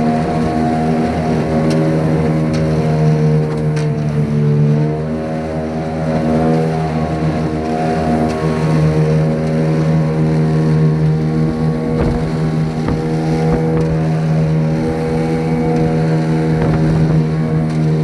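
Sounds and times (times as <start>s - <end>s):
outboard motor running: 0.0s - 18.0s
sharp knocks of hull: 11.7s - 14.2s.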